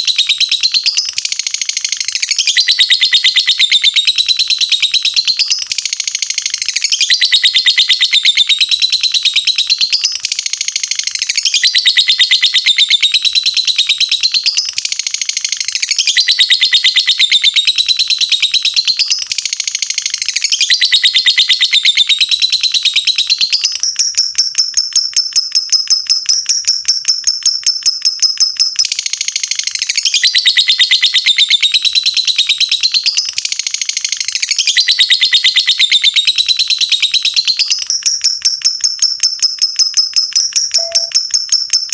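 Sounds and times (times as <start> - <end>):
lovebird chattering: 38.0 - 41.9
high-pitched bird trill: 39.5 - 41.9.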